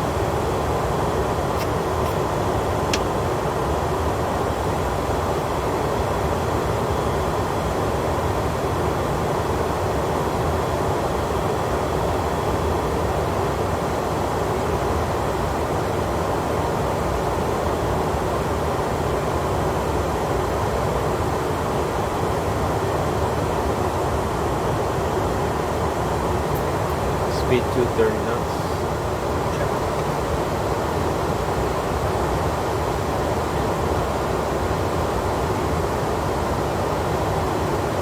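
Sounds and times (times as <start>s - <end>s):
aircraft cockpit noise: 0.0s - 6.1s, 25.5s - 32.2s.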